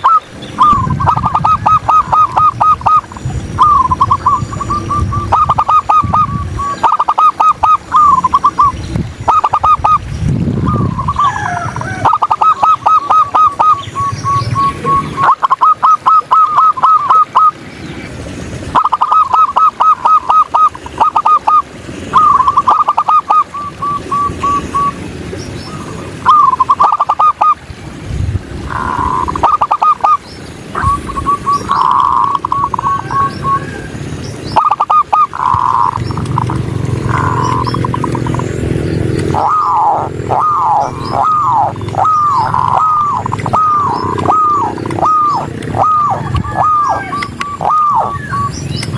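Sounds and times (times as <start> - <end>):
doves cooing: 0.0 - 17.6, 18.7 - 25.0, 25.7 - 27.7, 28.6 - 48.9.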